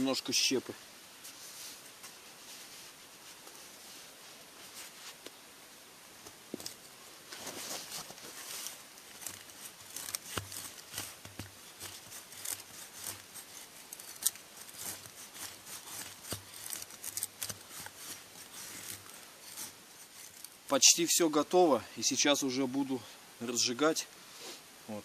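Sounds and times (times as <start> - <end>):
wood chips rustling and clicking: 6.2 - 20.8.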